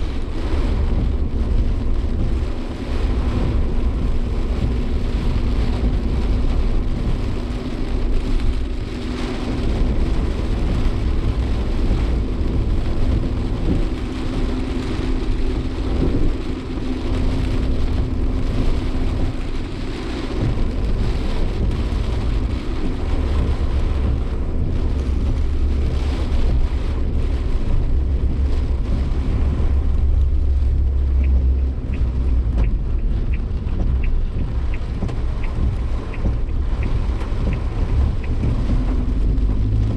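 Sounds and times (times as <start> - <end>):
car engine and road rumble: 0.0 - 39.9
rain hitting car body: 0.0 - 39.9
light ticks: 29.8 - 39.9.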